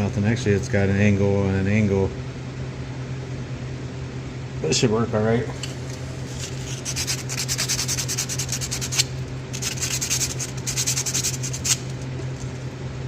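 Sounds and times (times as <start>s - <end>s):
sandpaper rasping on metal: 6.3s - 12.0s.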